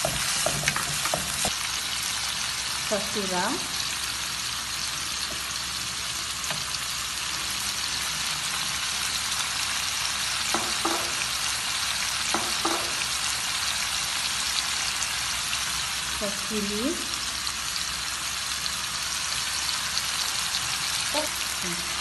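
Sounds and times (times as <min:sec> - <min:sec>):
wooden spatula stirring: 0:00.0 - 0:01.5
chicken frying in wok: 0:00.0 - 0:22.0.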